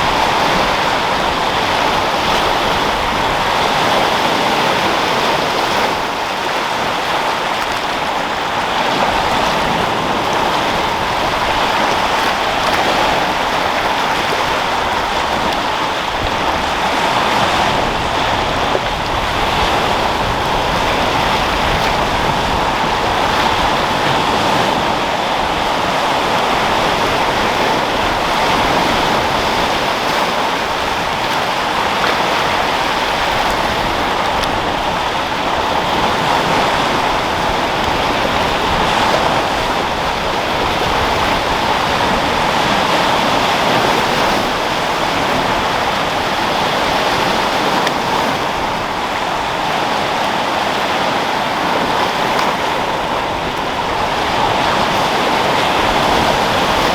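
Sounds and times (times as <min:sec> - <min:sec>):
sea waves breaking: 0:00.0 - 0:56.9
wind: 0:00.0 - 0:56.9.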